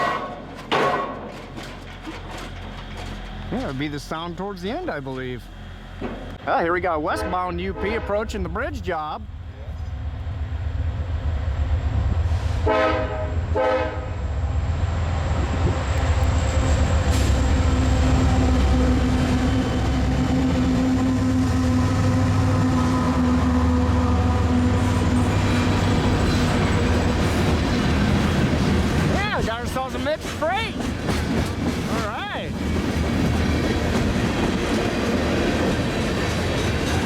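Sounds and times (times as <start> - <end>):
train rumbling: 0.0 - 37.0
locomotive horn blasts: 7.0 - 8.5, 12.5 - 14.2, 21.1 - 25.7.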